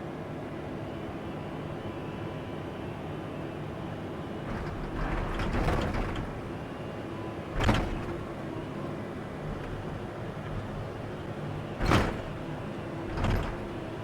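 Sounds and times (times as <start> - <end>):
excavator engine running: 4.3 - 14.0.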